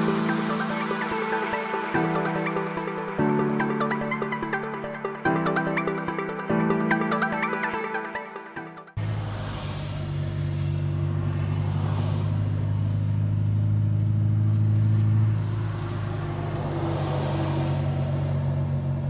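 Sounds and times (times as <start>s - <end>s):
truck diesel engine drone: 9.0s - 19.0s.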